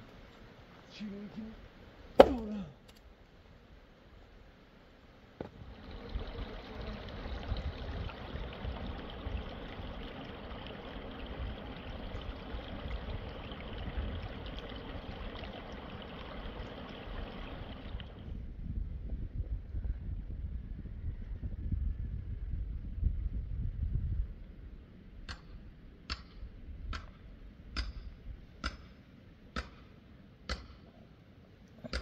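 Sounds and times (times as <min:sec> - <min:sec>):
water running: 0:05.6 - 0:18.2.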